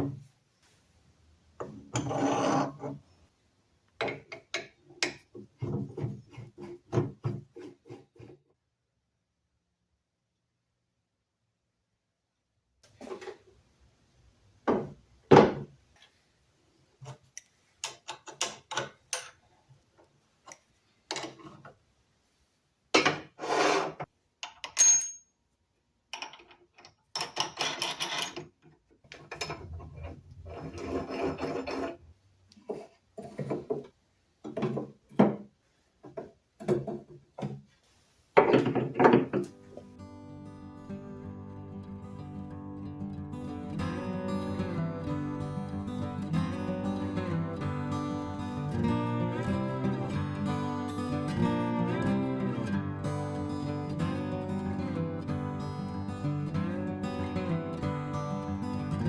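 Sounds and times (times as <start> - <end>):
knocks and scrapes of wood and tools: 1.6 - 3.2, 4.0 - 8.6, 12.8 - 13.6, 16.9 - 21.8, 23.0 - 24.2, 26.2 - 39.9.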